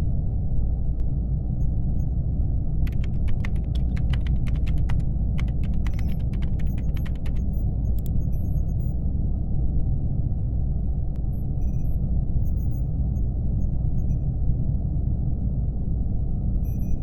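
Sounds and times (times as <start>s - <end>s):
low spaceship ambience hum: 0.0s - 17.0s
laptop keyboard typing: 2.8s - 8.2s.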